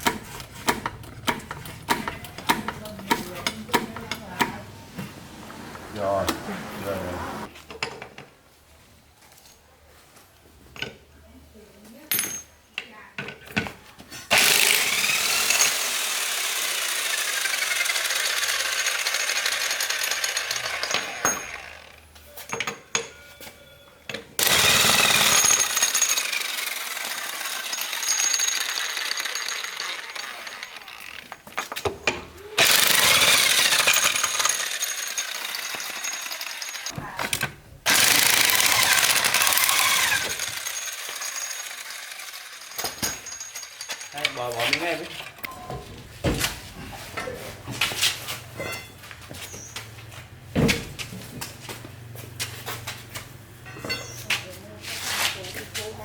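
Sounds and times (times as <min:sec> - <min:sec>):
power tool running: 0:14.3 - 0:22.0, 0:24.4 - 0:31.6, 0:32.6 - 0:37.0, 0:37.9 - 0:44.4.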